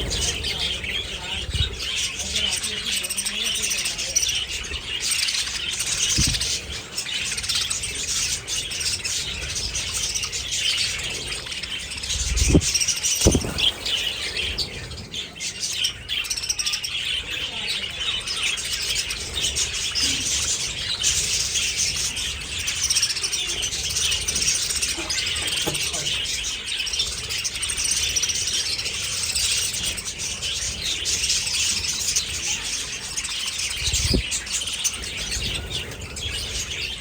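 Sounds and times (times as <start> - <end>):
budgerigars chattering and chirping: 0.0 - 37.0
dull thumps: 12.4 - 14.0.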